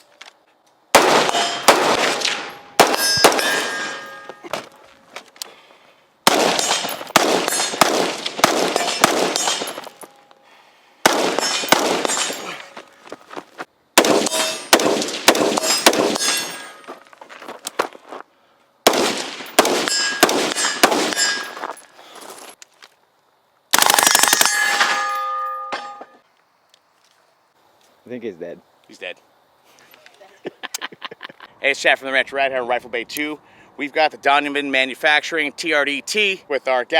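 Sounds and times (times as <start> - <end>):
rifle firing rapid shots: 1.0 - 3.8, 6.3 - 9.8, 11.0 - 12.4, 14.0 - 16.4, 18.9 - 21.3, 23.8 - 24.6
steel targets ringing: 1.0 - 4.5, 6.5 - 10.3, 11.2 - 12.9, 14.2 - 17.0, 19.4 - 21.9, 24.3 - 26.2.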